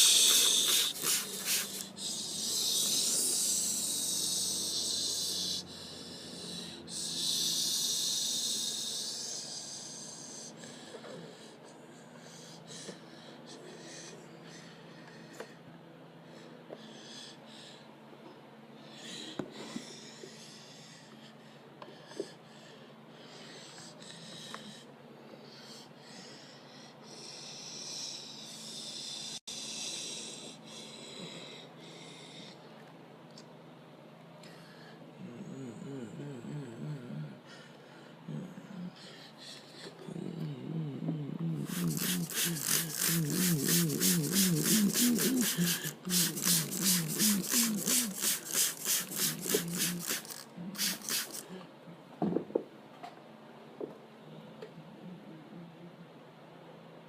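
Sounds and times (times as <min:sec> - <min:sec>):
car wash spray hissing: 0:00.0 - 0:01.9, 0:41.7 - 0:51.4
motor hum: 0:00.0 - 0:05.4, 0:41.6 - 0:51.5.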